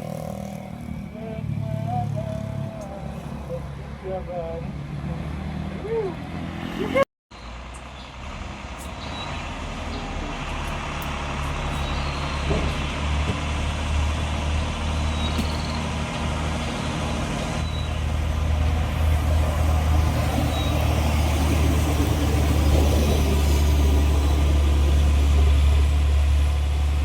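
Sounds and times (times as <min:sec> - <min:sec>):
truck diesel engine running: 0:07.4 - 0:27.0.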